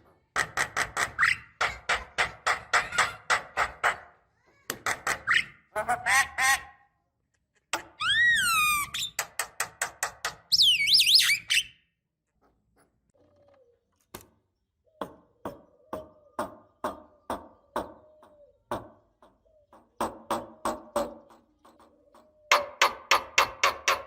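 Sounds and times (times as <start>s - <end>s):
bird warbling whistles: 10.5s - 11.8s
bird whistled calls: 10.5s - 11.8s.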